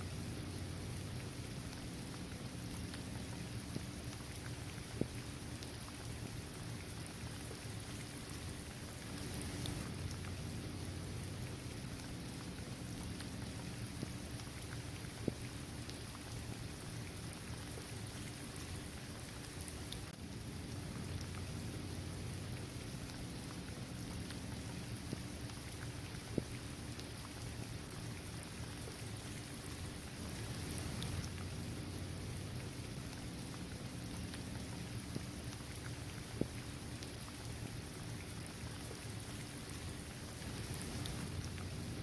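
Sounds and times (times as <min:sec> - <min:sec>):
steady rain falling: 0:00.0 - 0:42.0
single raindrop ticks: 0:30.4 - 0:31.5.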